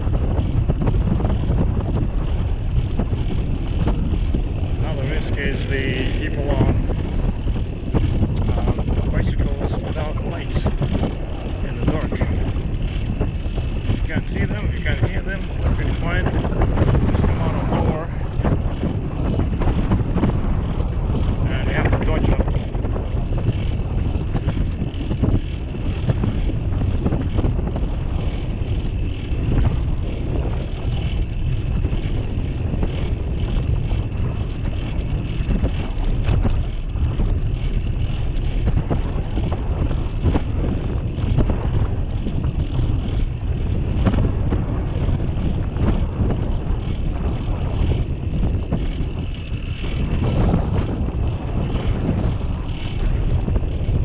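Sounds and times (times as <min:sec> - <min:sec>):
low rumble of bicycle: 0:00.0 - 0:54.0
wind buffeting microphone: 0:00.0 - 0:54.0.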